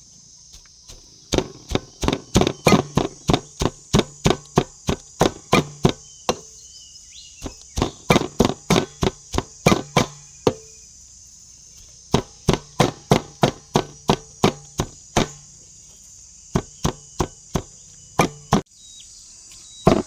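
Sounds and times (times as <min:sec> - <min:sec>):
insects chirring: 0:00.0 - 0:20.0
knife chopping on cutting board: 0:00.6 - 0:06.5, 0:07.4 - 0:10.7, 0:12.2 - 0:15.5, 0:16.6 - 0:18.6.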